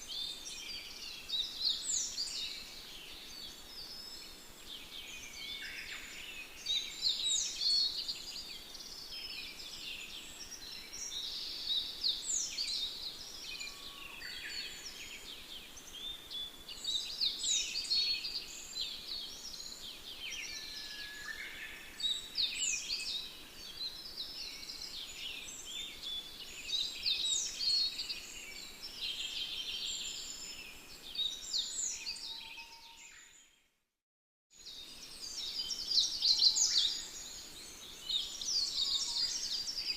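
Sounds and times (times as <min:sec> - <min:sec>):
songbirds chorus: 0:00.0 - 0:33.6, 0:34.6 - 0:39.9.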